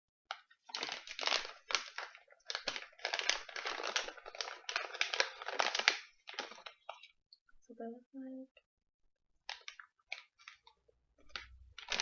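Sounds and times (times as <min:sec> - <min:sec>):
snack bag crinkling: 0:00.3 - 0:07.1, 0:09.4 - 0:12.0.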